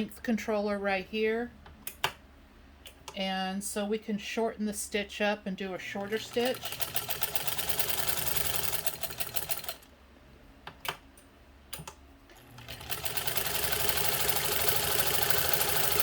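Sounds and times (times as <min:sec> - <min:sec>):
sewing machine stitching: 0:06.0 - 0:09.9, 0:12.3 - 0:16.0.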